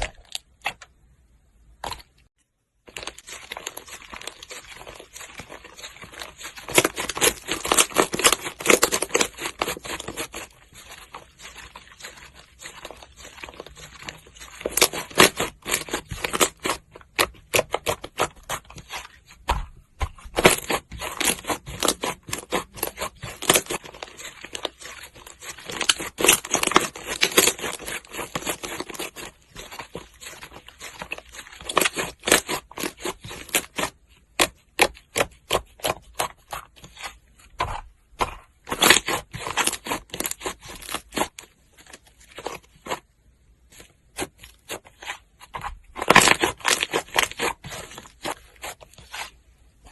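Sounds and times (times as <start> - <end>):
slime crackling and popping: 2.9 - 19.0, 20.2 - 36.4.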